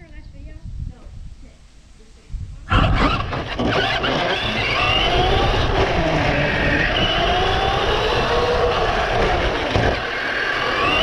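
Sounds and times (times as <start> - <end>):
drive rumble and rattle: 2.7 - 11.0
toy car motor whine: 2.7 - 11.0.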